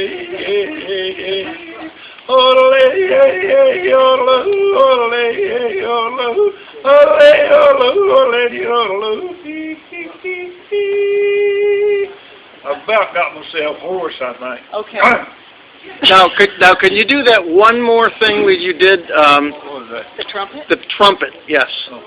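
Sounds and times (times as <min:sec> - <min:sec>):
man yodeling: 0:00.0 - 0:12.2.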